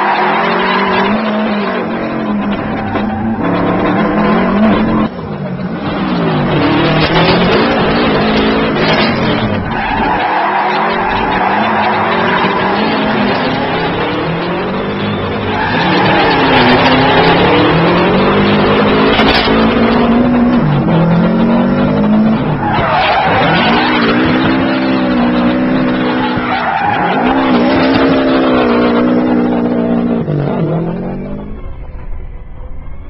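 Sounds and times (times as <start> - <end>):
rally car engine revving: 0.0 - 31.5
tyres squealing on tarmac: 9.6 - 17.4, 22.4 - 28.5.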